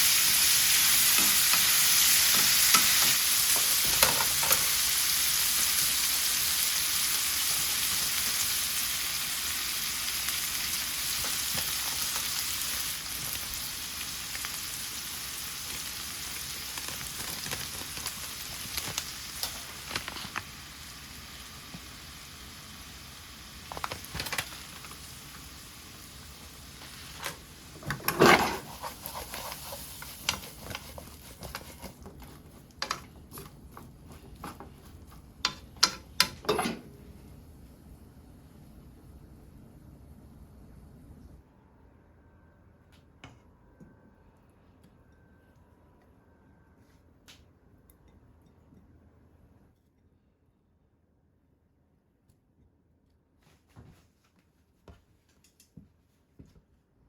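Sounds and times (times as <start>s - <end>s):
food sizzling in a pan: 0.0s - 33.6s.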